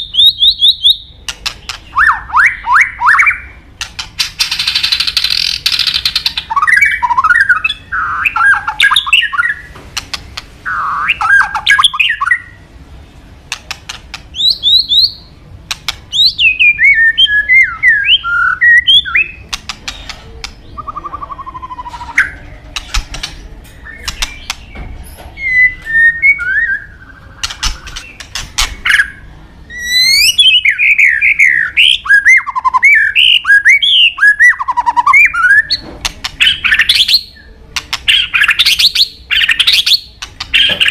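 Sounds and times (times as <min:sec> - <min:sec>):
sharp bird clicks: 0:00.2 - 0:12.5, 0:13.5 - 0:17.4, 0:18.0 - 0:29.2, 0:34.4 - 0:40.9
bird singing whistled notes: 0:04.4 - 0:09.7, 0:10.6 - 0:12.6, 0:14.3 - 0:15.3, 0:16.1 - 0:19.5, 0:20.5 - 0:22.5, 0:23.8 - 0:35.8.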